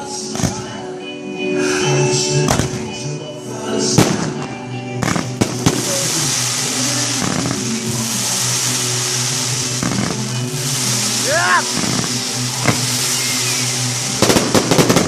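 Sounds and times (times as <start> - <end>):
background music: 0.0 - 15.0
fireworks bangs: 2.5 - 2.9, 4.0 - 15.0
fireworks crackling hiss: 5.0 - 15.0.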